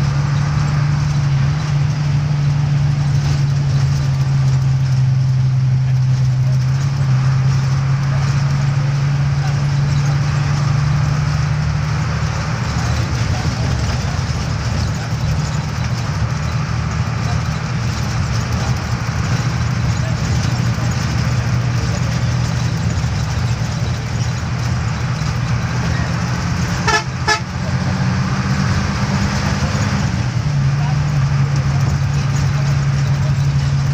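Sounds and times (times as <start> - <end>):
road traffic engine hum: 0.0 - 33.9
vehicle horn toots: 26.7 - 27.7.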